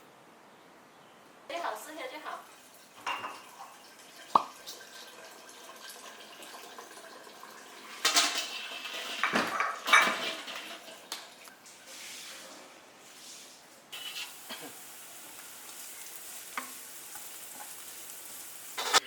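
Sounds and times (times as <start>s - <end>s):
dishes and utensils clattering: 3.0s - 3.7s, 7.9s - 11.1s, 13.9s - 14.8s, 18.8s - 19.0s.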